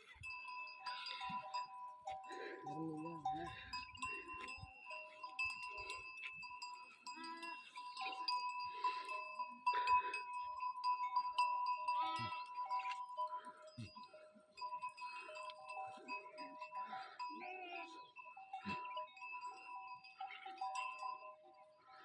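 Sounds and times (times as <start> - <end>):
steady ringing tones: 0.0 - 22.0
livestock bleating: 7.1 - 8.2, 11.9 - 12.9, 17.0 - 18.0.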